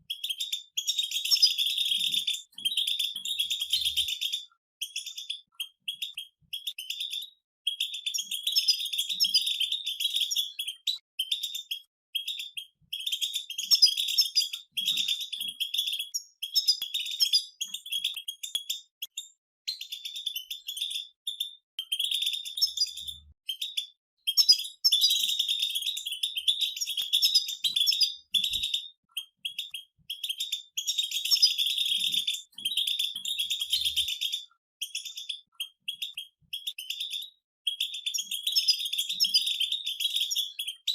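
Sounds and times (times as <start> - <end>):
goldfinches twittering: 24.3 - 28.8.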